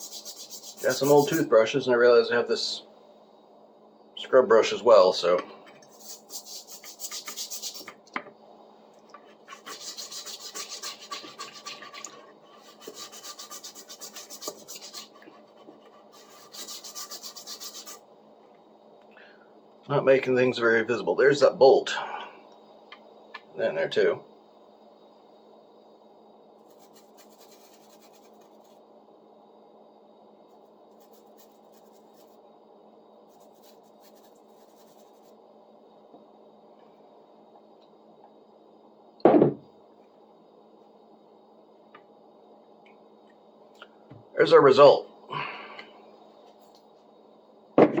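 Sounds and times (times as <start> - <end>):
brush scrubbing metal blade: 0.0 - 1.5, 5.9 - 7.9, 9.5 - 18.0.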